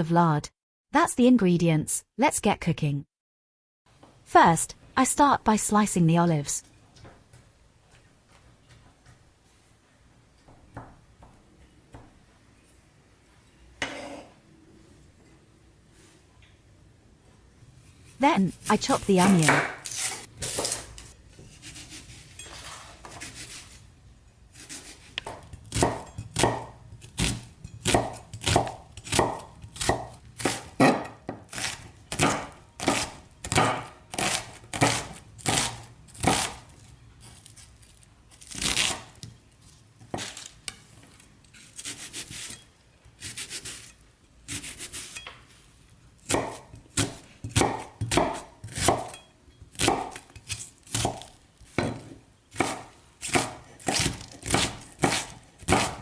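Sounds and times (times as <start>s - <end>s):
knife chopping on cutting board: 18.6s - 23.7s, 24.5s - 36.7s, 40.0s - 40.5s, 46.2s - 56.0s.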